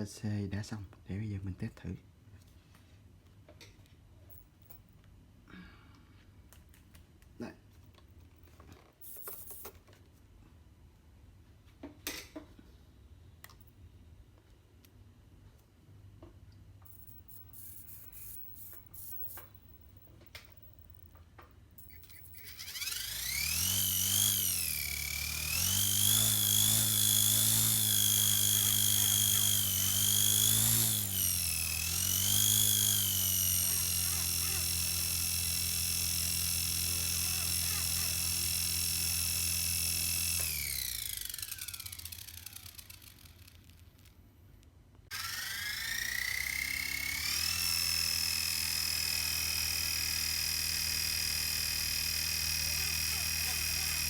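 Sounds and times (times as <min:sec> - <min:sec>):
rc helicopter motor whining: 0:17.5 - 0:19.5, 0:21.8 - 0:44.1, 0:45.1 - 0:54.0.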